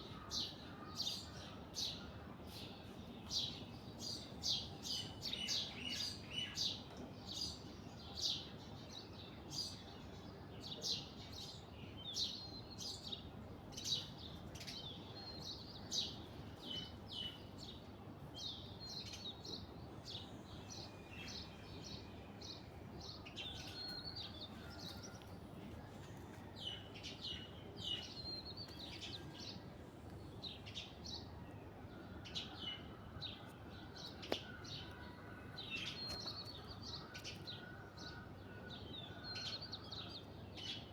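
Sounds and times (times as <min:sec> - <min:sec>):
birds chirping: 0:13.8 - 0:40.9.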